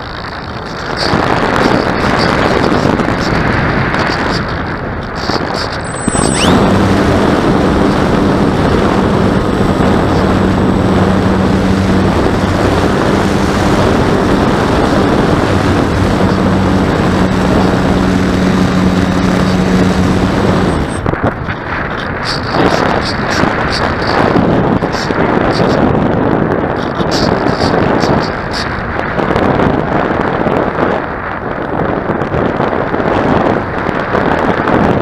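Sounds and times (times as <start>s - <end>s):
wind rushing over microphone: 0.0s - 35.0s
steady low hum: 1.5s - 25.7s.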